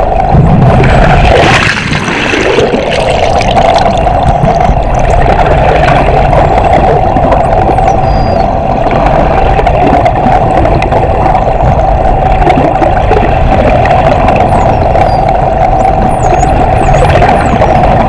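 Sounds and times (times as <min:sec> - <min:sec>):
boat engine drone underwater: 0:00.0 - 0:18.0
dolphin whistles underwater: 0:07.6 - 0:08.6, 0:14.4 - 0:18.0.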